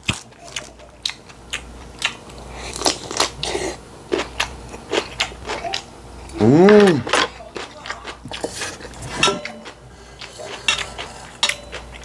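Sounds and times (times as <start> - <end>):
crunching and chewing food: 0.0 - 12.0
hummed voice sound: 5.6 - 7.2.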